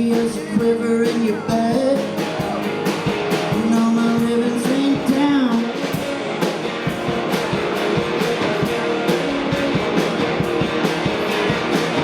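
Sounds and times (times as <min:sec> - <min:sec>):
electric guitars: 0:00.0 - 0:12.0
steady drum beat: 0:00.0 - 0:12.0.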